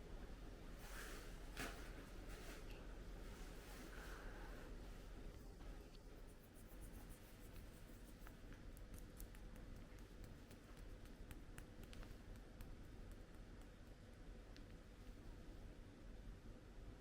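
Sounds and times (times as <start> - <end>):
faint light clicks and scratches: 5.3 - 15.2.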